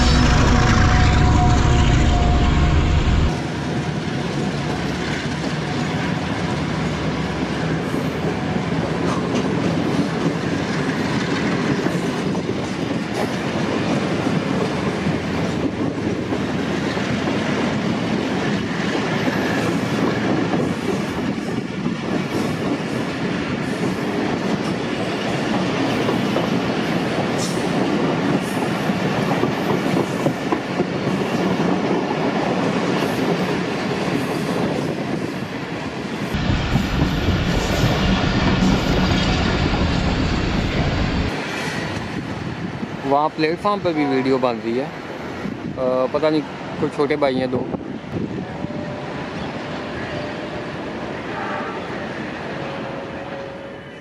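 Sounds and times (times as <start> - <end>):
locomotive rumble: 0.0 - 3.4
train coaches rumbling past: 0.0 - 54.0.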